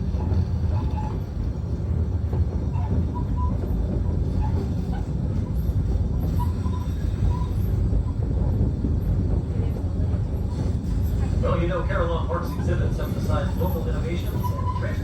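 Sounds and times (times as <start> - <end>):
train car rumbling: 0.0 - 15.0.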